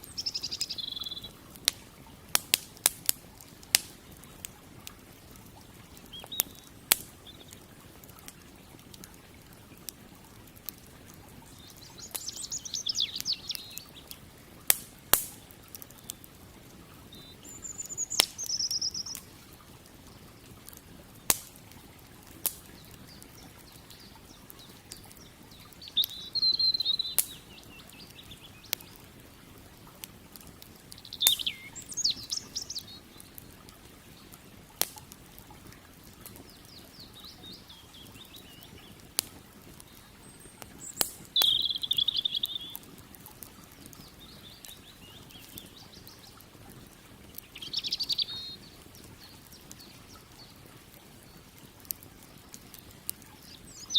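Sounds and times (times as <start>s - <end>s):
songbird warbling: 0.0s - 1.4s, 6.1s - 7.6s, 11.4s - 14.1s, 17.1s - 19.4s, 22.6s - 29.0s, 30.9s - 33.5s, 39.9s - 42.9s, 47.4s - 50.6s, 53.4s - 53.9s
campfire crackling and popping: 0.0s - 53.9s.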